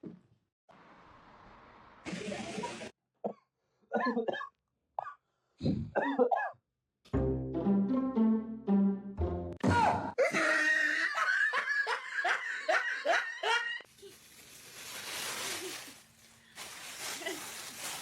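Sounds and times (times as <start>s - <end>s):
person laughing: 10.2s - 13.8s.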